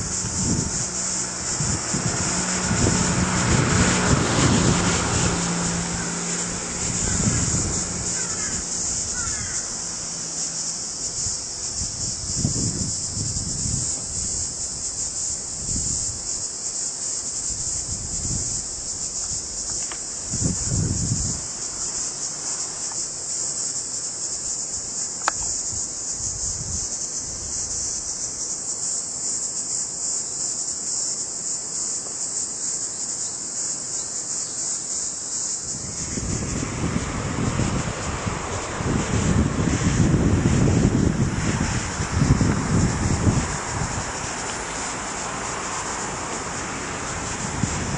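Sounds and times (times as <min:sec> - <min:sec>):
wind buffeting microphone: 0:00.0 - 0:16.6, 0:17.4 - 0:22.1, 0:25.2 - 0:28.3, 0:35.5 - 0:47.9
insects chirping: 0:00.0 - 0:47.9.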